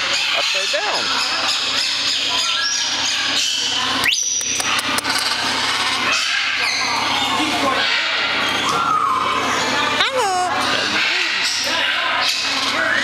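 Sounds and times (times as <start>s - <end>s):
parrot squeaks: 0.1s - 10.0s, 11.4s - 13.0s
parrot rising whistle: 8.4s - 9.6s
rasping background noise: 9.4s - 13.0s.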